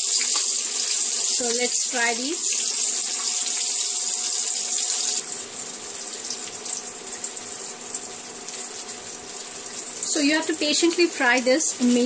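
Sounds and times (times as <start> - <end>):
vegetable slices sizzling in oil: 0.0 - 9.1.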